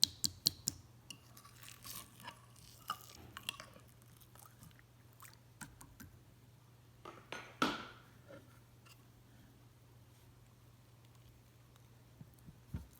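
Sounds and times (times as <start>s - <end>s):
slime squishing: 1.2s - 5.9s.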